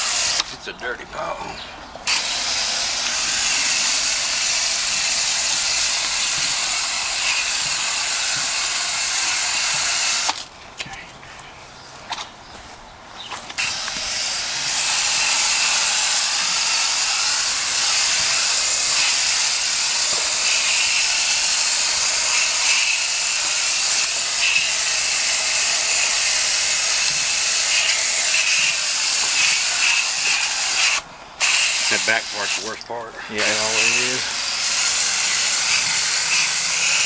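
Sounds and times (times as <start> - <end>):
liquid spraying from nozzle: 2.1 - 10.4, 13.6 - 32.8, 33.4 - 37.0.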